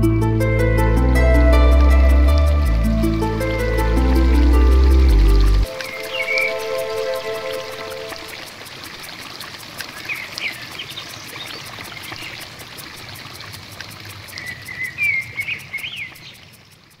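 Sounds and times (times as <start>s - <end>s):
running water: 1.2s - 17.0s
birds chirping: 3.3s - 8.3s, 14.3s - 16.6s.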